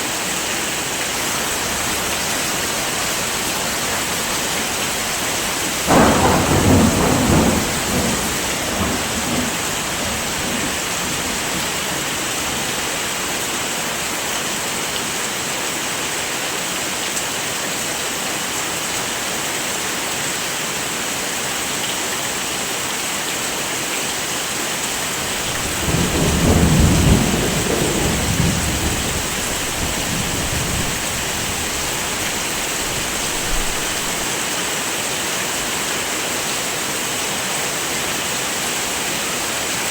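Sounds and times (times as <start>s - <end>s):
heavy rain hissing: 0.0s - 16.0s, 23.3s - 39.9s
rolling thunder: 2.7s - 12.7s, 25.2s - 34.3s.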